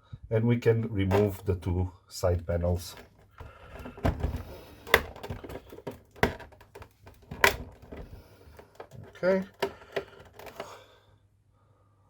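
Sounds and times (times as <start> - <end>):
hard plastic clicks and knocks: 1.1 - 1.4, 2.9 - 10.8
dull thuds: 2.9 - 10.6.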